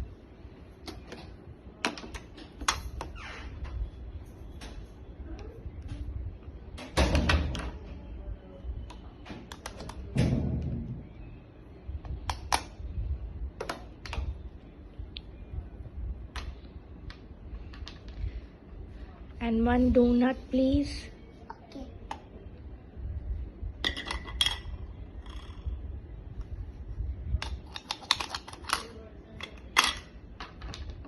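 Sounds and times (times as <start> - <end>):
plastic toy clicks and knocks: 27.4 - 31.0.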